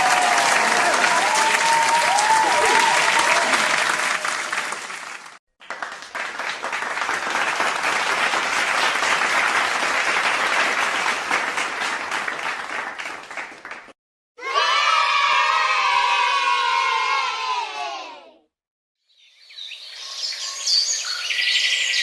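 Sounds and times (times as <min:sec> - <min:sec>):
crowd applause: 0:00.0 - 0:14.0.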